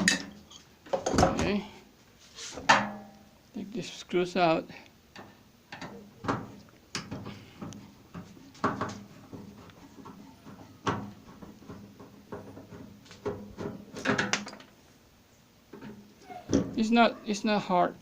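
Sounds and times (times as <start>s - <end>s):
tools knocking on metal parts: 0.0s - 0.4s.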